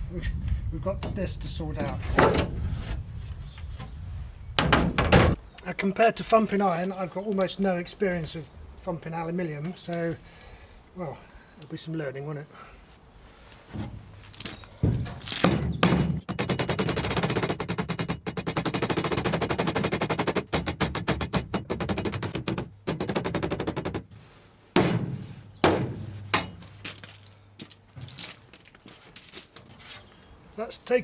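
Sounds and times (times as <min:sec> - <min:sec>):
hammer striking metal panel: 0:15.4 - 0:24.1, 0:24.8 - 0:26.7.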